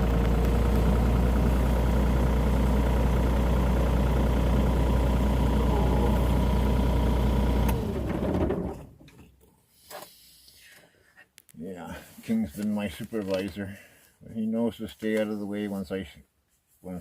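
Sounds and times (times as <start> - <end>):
diesel engine running: 0.0 - 8.9.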